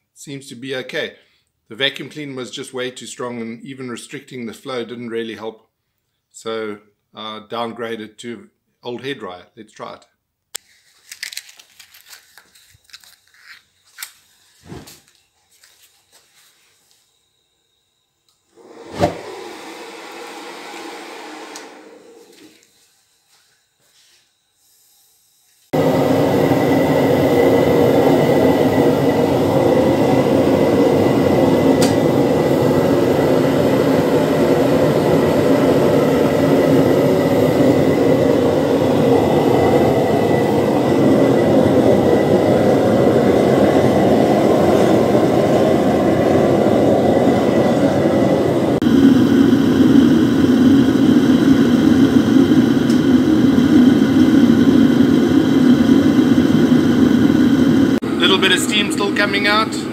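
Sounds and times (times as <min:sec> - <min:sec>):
faint high whine: 0:11.0 - 0:59.9
furnace burner roaring: 0:18.3 - 0:59.9.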